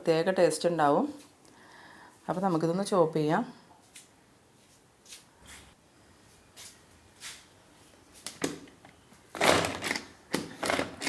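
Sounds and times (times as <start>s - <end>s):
hand chopper chopping grapes: 9.4s - 11.0s.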